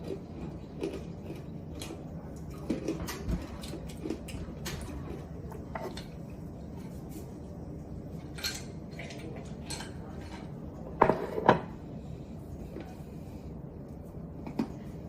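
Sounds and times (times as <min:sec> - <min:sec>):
utensils clinking against dishes: 0:08.2 - 0:11.7.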